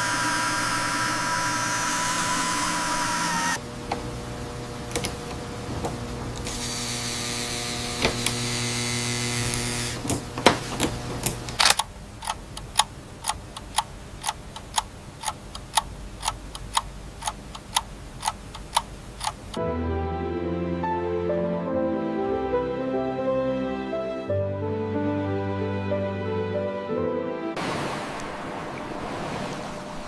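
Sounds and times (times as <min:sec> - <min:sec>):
mechanical hum: 0:00.0 - 0:19.6
scattered clicks: 0:11.2 - 0:19.6
sharp regular ticks: 0:11.5 - 0:19.6.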